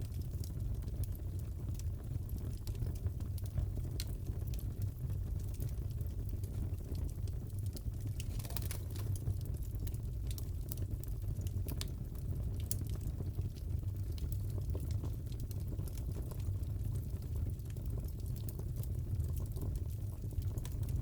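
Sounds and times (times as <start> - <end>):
fire crackling in fireplace: 0.0 - 21.0.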